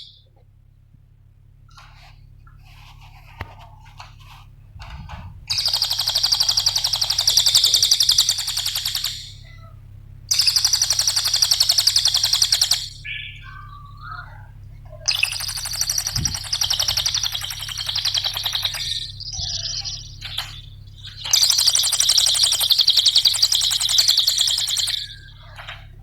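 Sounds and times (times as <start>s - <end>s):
songbird chirping and trilling: 0.0s - 0.4s, 1.7s - 26.0s.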